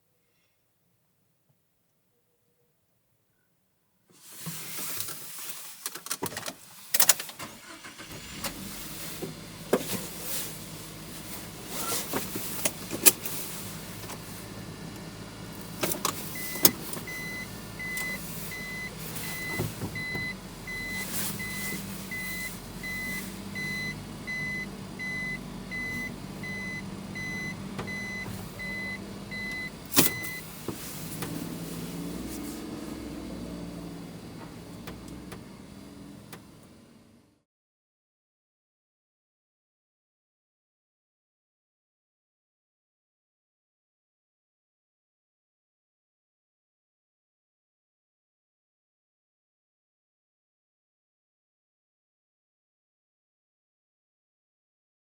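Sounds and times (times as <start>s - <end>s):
low engine hum: 7.6s - 37.4s
warning chime beeping: 16.4s - 30.5s.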